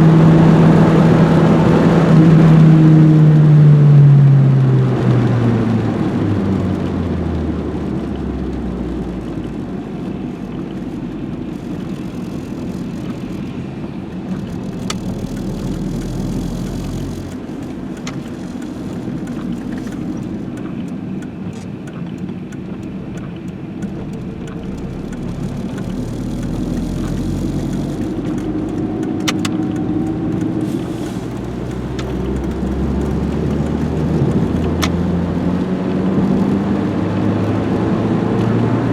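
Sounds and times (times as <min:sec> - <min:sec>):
car engine: 0:00.0 - 0:38.9
road rumble: 0:00.0 - 0:38.9
short clicks: 0:14.5 - 0:35.0.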